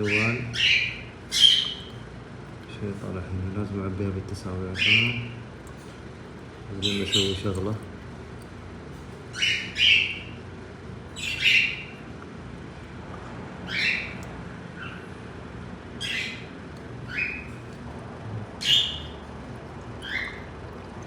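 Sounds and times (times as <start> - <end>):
bird harsh calls: 0.0 - 2.2, 4.7 - 5.4, 6.8 - 7.7, 9.2 - 10.4, 11.0 - 12.0, 13.6 - 15.2, 16.0 - 17.6, 18.6 - 19.3, 20.0 - 20.5.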